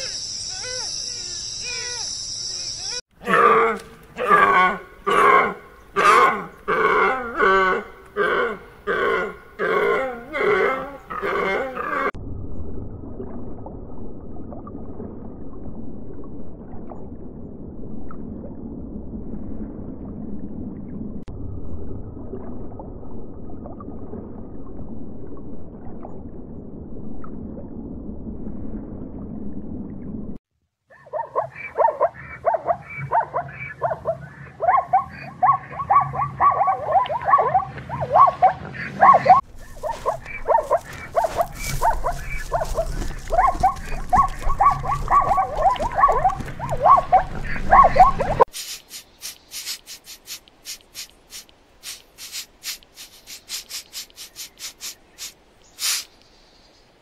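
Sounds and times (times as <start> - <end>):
rapid high-pitched animal calls: 0.0 - 3.0, 31.0 - 56.1
low animal rumbling: 39.3 - 48.4.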